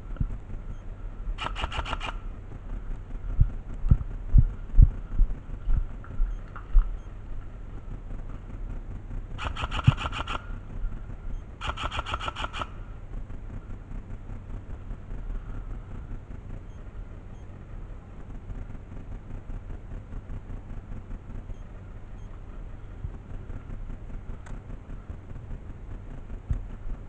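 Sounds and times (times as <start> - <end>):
airsoft gun rapid shots: 1.4 - 2.3, 9.4 - 10.6, 11.6 - 12.8.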